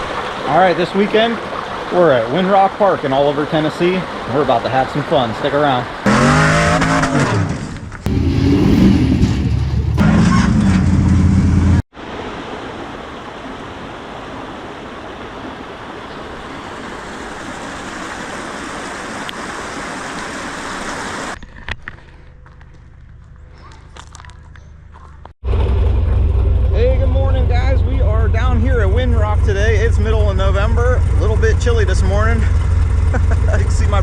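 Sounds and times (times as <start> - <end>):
buggy engine revving: 6.0 - 11.8, 25.4 - 34.0.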